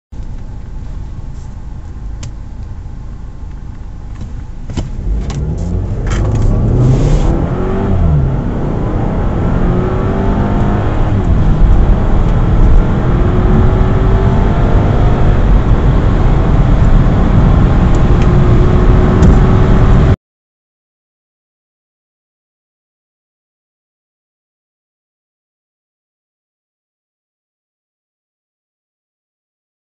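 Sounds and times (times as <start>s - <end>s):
car engine accelerating: 0.2s - 20.2s.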